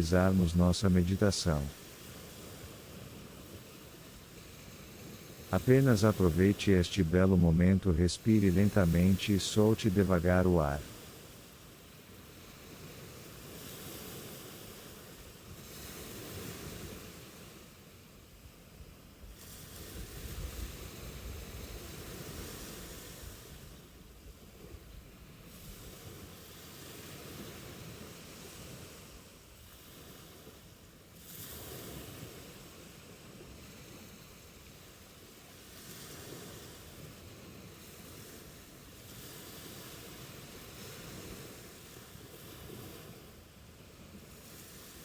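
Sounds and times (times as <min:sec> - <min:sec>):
ocean waves on shore: 0:00.0 - 0:17.8, 0:24.6 - 0:45.0
ocean waves washing onto beach: 0:00.0 - 0:17.8.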